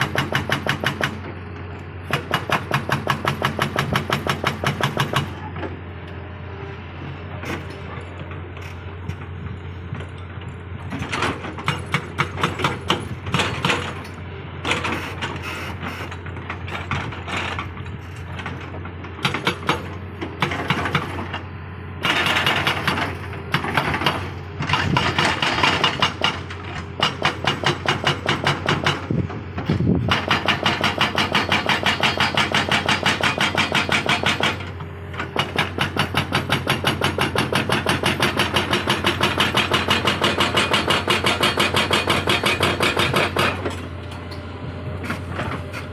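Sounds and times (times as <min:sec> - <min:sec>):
hydraulic rock breaker hammering: 0:00.0 - 0:01.3, 0:02.0 - 0:05.4, 0:11.0 - 0:21.4, 0:22.0 - 0:43.9
diesel engine humming: 0:34.3 - 0:45.9.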